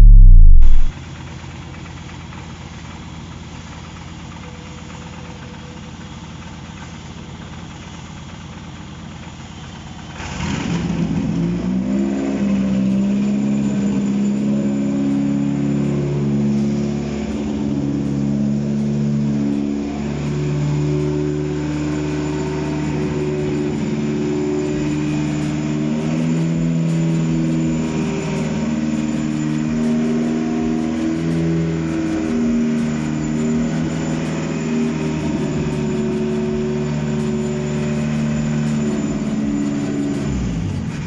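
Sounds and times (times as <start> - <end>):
car engine running: 0.0 - 1.0, 10.1 - 41.0
mechanical hum: 0.0 - 1.0, 3.1 - 41.0.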